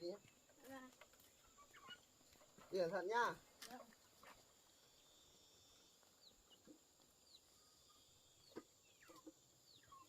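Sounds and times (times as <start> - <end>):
faint bird chirps: 1.3 - 2.1, 3.8 - 10.0.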